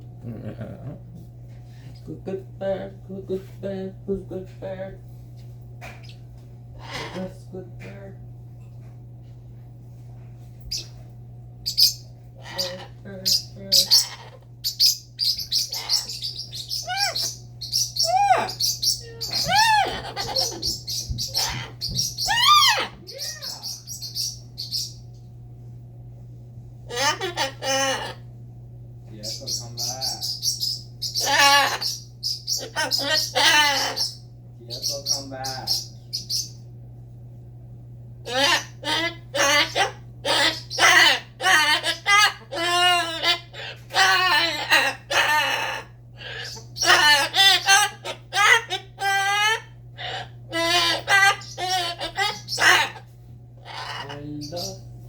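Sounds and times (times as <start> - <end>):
parrot whistling: 11.7 - 25.0, 38.3 - 53.0
rapid high-pitched chirping: 13.3 - 25.0, 29.2 - 36.6.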